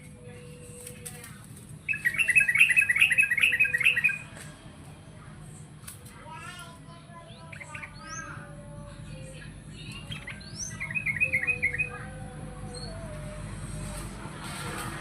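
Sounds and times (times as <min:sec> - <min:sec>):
bulbul singing chirps and whistles: 0:01.8 - 0:04.2, 0:09.3 - 0:12.1.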